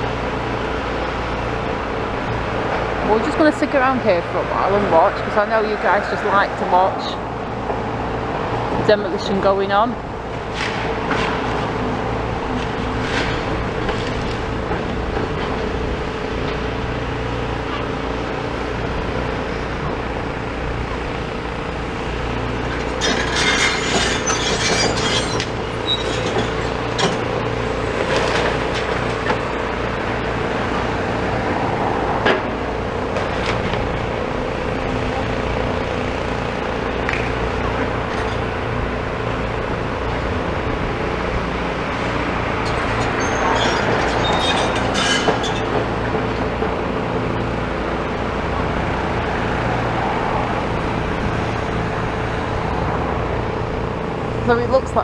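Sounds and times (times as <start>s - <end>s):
distant excavator engines droning: 0.0s - 55.0s
rubble scraping and clanking: 8.8s - 18.0s, 22.4s - 29.9s, 42.1s - 48.1s.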